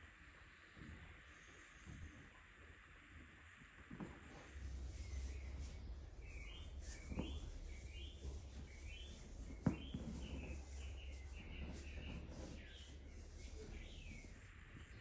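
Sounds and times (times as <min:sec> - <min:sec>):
low steady rumble: 0:03.6 - 0:15.0
bird chirping: 0:04.6 - 0:15.0.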